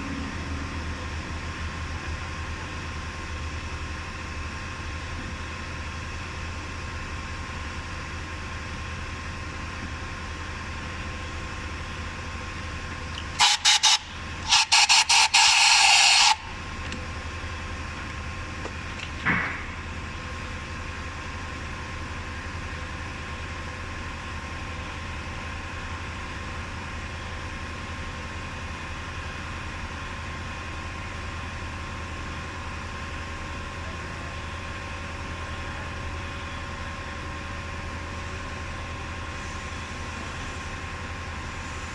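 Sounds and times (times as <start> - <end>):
steady low hum: 0.0 - 13.4
loud hissing blasts: 13.3 - 16.6
brief knock: 19.2 - 19.8.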